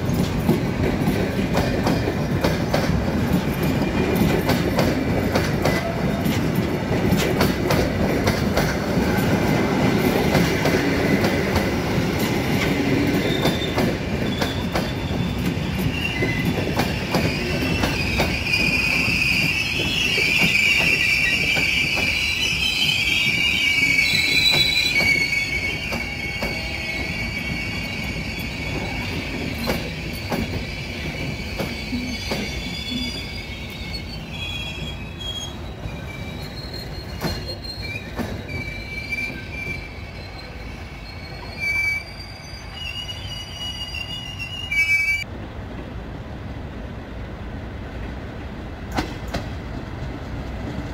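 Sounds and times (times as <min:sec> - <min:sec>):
train wheels clicking over rail joints: 0:00.0 - 0:34.1, 0:34.8 - 0:40.2, 0:48.8 - 0:50.9
train rumble: 0:00.0 - 0:41.6, 0:45.2 - 0:50.9
high wheel squeal: 0:09.0 - 0:45.2.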